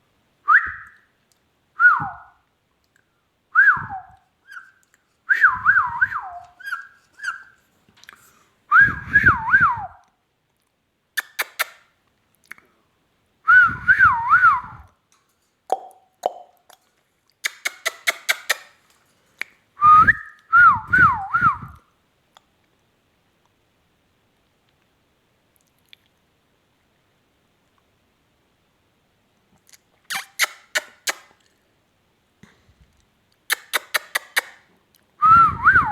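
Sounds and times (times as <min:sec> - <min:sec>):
parakeet warbling whistles: 0:06.2 - 0:07.6.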